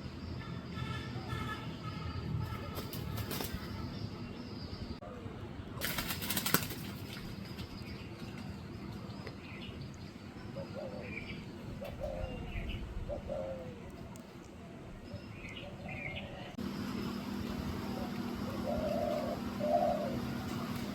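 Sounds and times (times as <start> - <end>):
steady low hum: 11.5 - 20.9
birds calling: 15.0 - 20.9.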